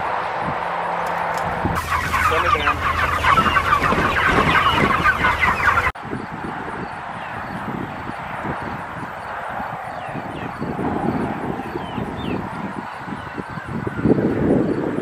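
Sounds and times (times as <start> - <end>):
chickens clucking and peeping: 1.0 - 6.0, 11.4 - 14.8.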